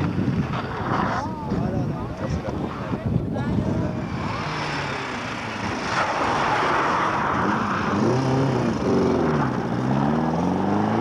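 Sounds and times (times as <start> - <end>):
rush of noise: 0.0 - 11.0
rally car engine revving: 3.9 - 11.0.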